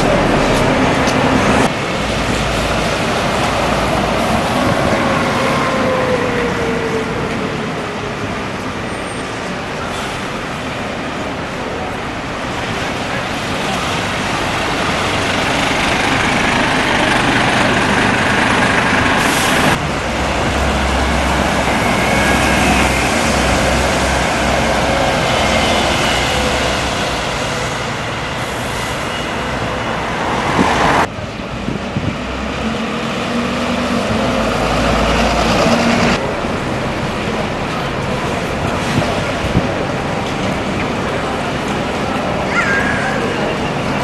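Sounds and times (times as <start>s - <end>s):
road traffic noise: 0.0s - 44.0s
heavy vehicle engine running: 9.7s - 30.0s.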